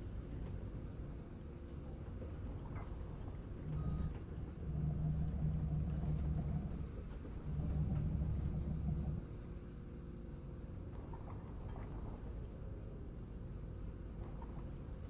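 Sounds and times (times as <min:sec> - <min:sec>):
heavy machinery engine rumbling: 0:03.0 - 0:09.5.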